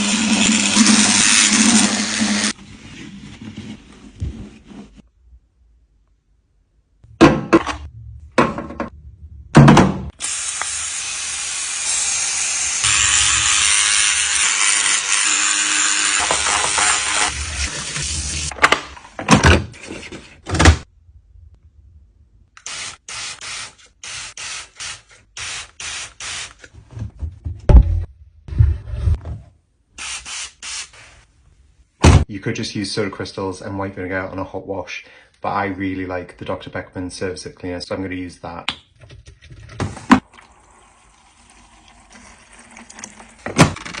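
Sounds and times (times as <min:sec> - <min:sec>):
thuds: 0:32.0 - 0:32.3.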